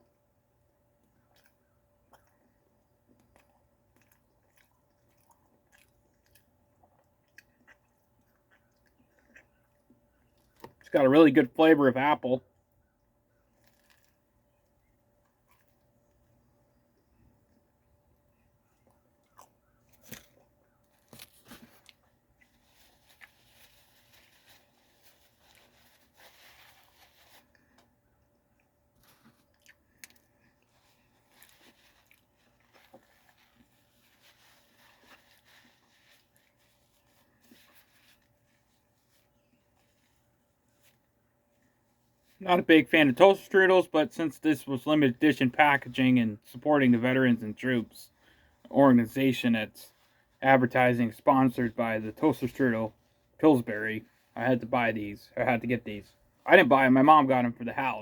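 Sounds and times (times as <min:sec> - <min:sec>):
faint chewing of pastry: 0:00.0 - 0:11.0, 0:12.4 - 0:42.4
faint steady hum: 0:00.0 - 0:58.0.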